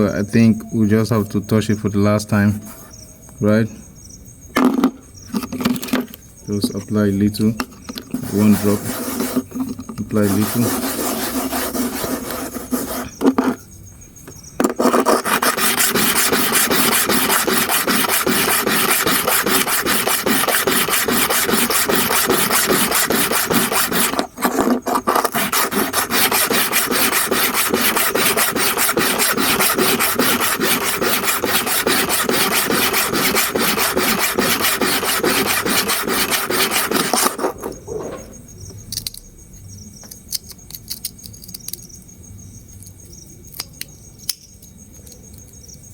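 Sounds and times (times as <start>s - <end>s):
blade scraping on sharpening stone: 14.8s - 37.6s.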